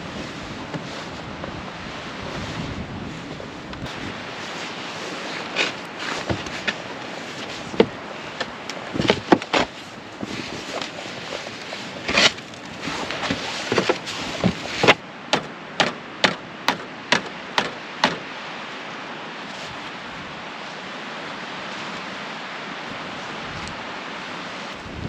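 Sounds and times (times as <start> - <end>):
steady background hiss: 0.0 - 25.0
sharp knocks: 13.2 - 18.2.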